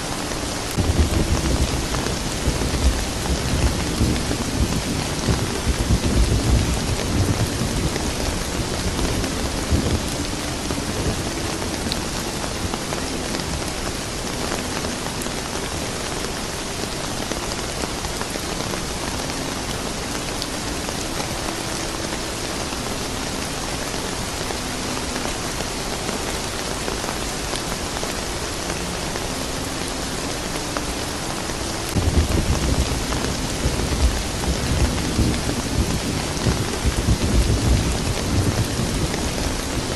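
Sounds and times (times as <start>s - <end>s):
steady rain falling: 0.0s - 39.9s
thunder rumbling: 0.7s - 16.0s, 31.9s - 39.9s.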